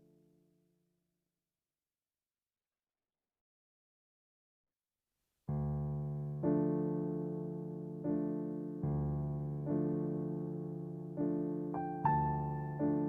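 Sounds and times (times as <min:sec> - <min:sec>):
slow piano chords music: 0:05.5 - 0:13.0.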